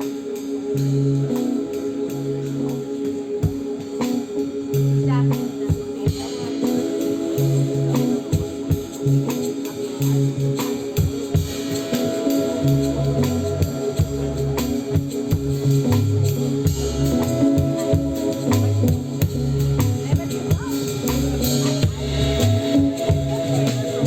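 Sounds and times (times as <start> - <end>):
drum kit: 0.0 - 24.0
pulsing bass line: 7.4 - 24.0.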